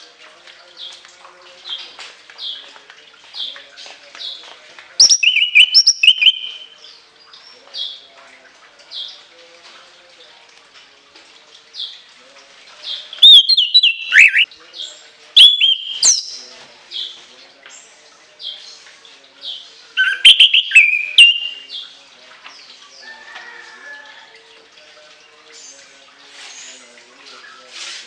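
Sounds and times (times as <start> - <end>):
thrush singing whistled phrases: 5.0 - 6.8, 13.1 - 14.5, 15.4 - 16.5, 20.0 - 21.8.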